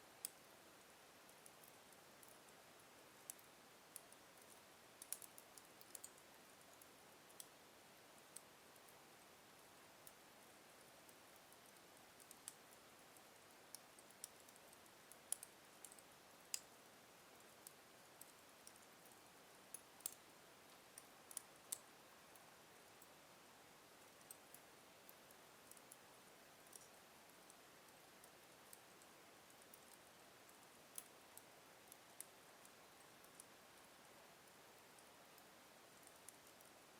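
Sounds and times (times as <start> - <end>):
faint fire hiss: 0.0 - 36.9
wood fire crackling: 0.2 - 23.0, 23.9 - 36.9.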